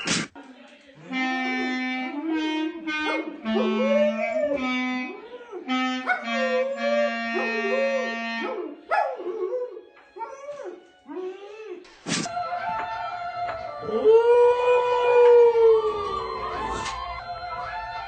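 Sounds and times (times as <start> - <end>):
long held instrument notes: 1.0 - 8.8
dog howling and whining: 3.1 - 4.6, 5.6 - 11.8.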